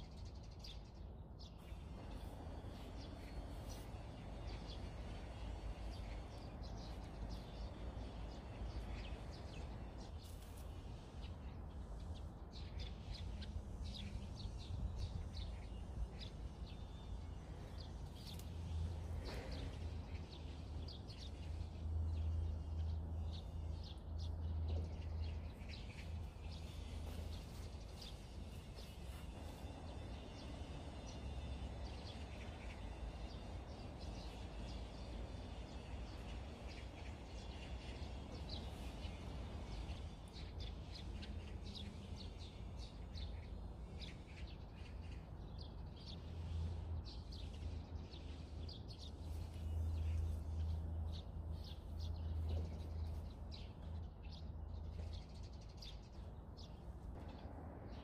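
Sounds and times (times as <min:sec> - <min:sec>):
small birds chirping: 0:00.0 - 0:58.0
steady low rumble: 0:00.9 - 0:34.4.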